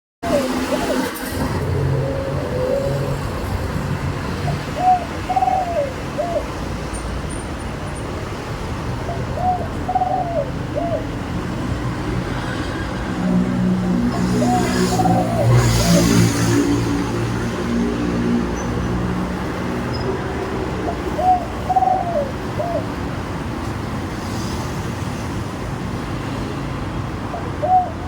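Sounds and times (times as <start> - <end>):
dove cooing: 0.2 - 6.8, 9.0 - 11.6, 13.9 - 16.7, 20.7 - 23.0, 27.3 - 28.0
low traffic rumble: 0.2 - 28.0.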